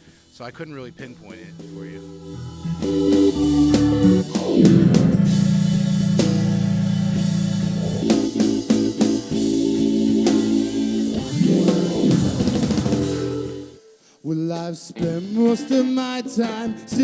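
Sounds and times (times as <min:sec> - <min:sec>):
sliding guitar note: 0:01.1 - 0:13.8
rock band music: 0:01.3 - 0:13.8.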